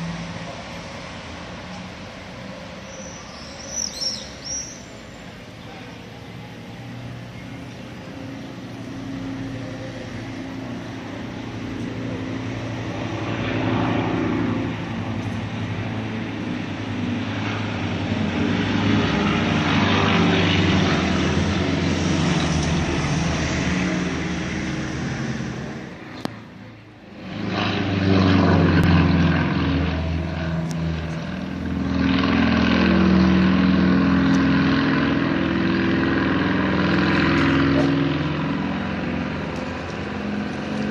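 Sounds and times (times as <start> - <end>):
propeller planes flying overhead: 0.0 - 40.9.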